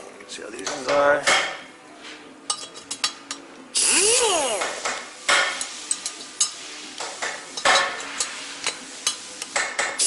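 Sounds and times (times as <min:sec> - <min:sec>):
valve seat grinder: 0:03.8 - 0:04.8.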